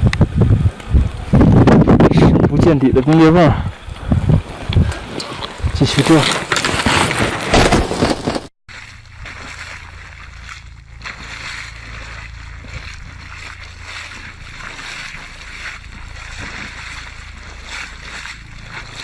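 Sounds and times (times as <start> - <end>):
low motor hum: 0.0 - 5.9, 8.7 - 19.0
water rushing and splashing: 8.7 - 19.0.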